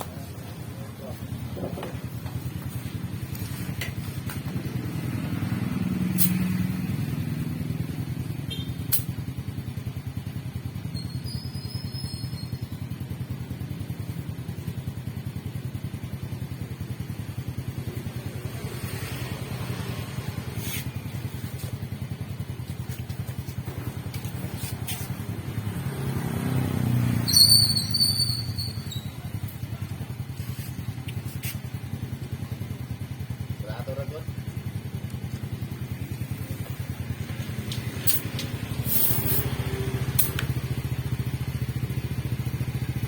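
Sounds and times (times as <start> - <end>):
small motorbike engine idling: 0.0 - 43.0
high-pitched chirping: 27.2 - 29.3.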